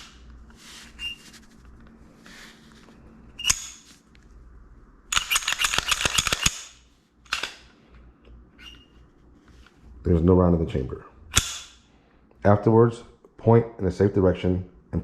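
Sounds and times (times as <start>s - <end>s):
pistol metal clicks: 5.1s - 7.7s, 11.3s - 11.8s.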